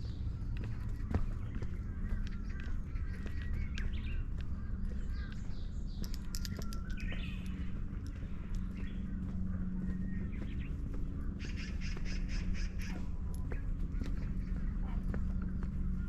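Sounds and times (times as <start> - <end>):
small birds chirping: 0.0 - 16.0
steady low rumble: 0.0 - 16.0
scattered clicks: 5.9 - 8.9.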